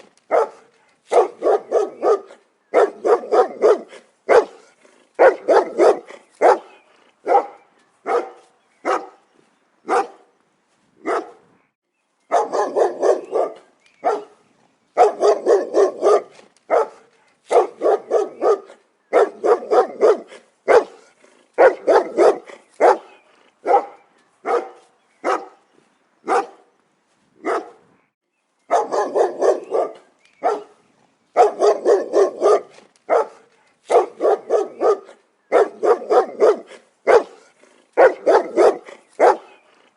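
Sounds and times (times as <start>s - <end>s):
dog barking: 0.3s - 9.2s, 9.9s - 10.3s, 11.0s - 11.4s, 12.3s - 14.4s, 15.0s - 25.6s, 26.3s - 26.7s, 27.4s - 27.8s, 28.7s - 30.8s, 31.4s - 39.7s.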